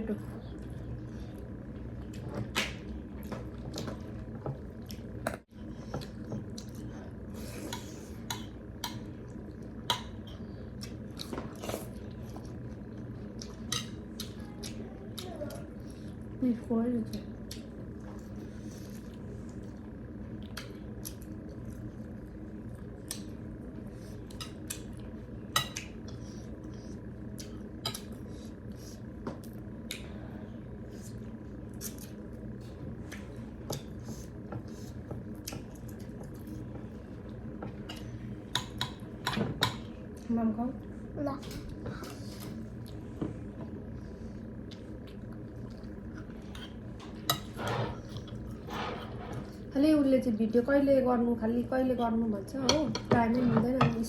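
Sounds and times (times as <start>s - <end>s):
steady low hum: 0.0s - 54.0s
tableware scraping: 47.0s - 49.6s.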